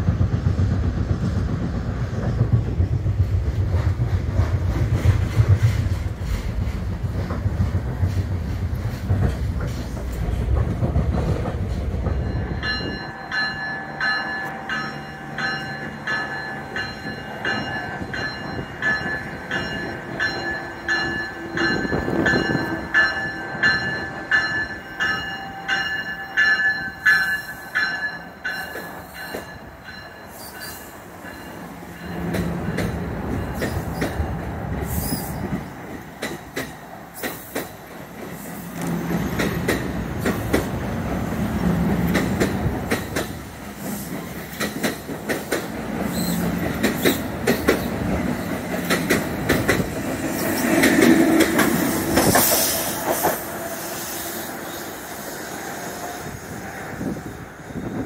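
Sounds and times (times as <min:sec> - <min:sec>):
train wheels rumbling and clacking: 0:00.0 - 0:58.0
high wheel squeal: 0:34.9 - 0:35.4.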